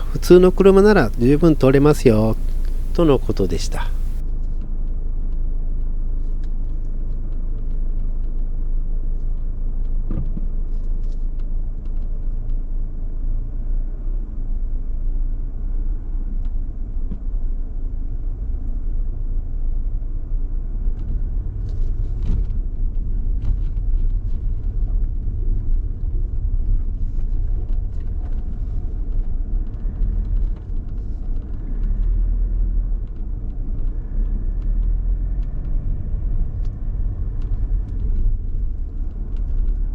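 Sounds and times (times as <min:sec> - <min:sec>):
car driving slowly: 0:00.0 - 0:04.2.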